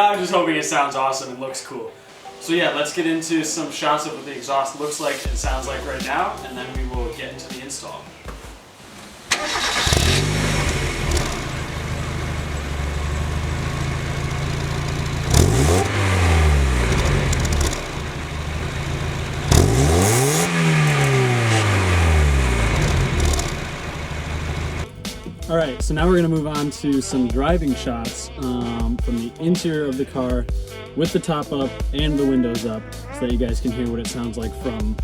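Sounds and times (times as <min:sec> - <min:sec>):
car engine idling and revving: 0:09.3 - 0:24.9.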